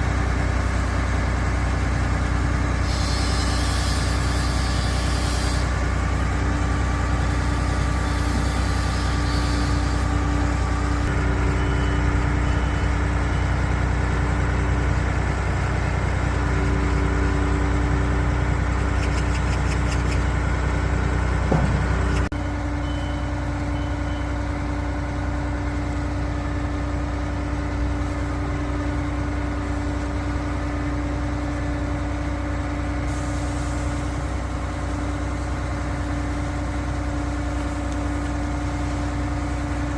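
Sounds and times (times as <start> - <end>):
diesel engine running: 0.0 - 39.9
short high beeps: 22.4 - 24.4.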